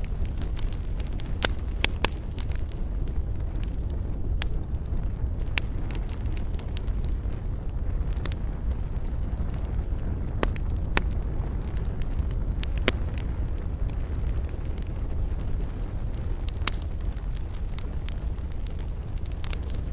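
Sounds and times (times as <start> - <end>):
fire crackling and popping: 0.0 - 19.9
roar of flames: 0.0 - 19.9.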